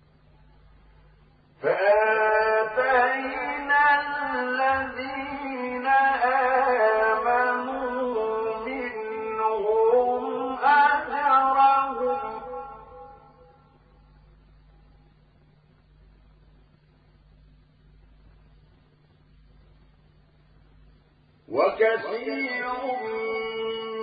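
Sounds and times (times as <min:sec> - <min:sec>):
man chanting melodically: 0:01.6 - 0:13.5, 0:21.5 - 0:24.0.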